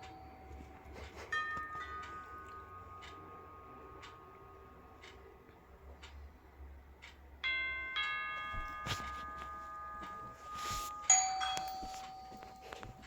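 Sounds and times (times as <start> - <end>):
chime ringing: 0.0 - 4.7, 7.4 - 13.0.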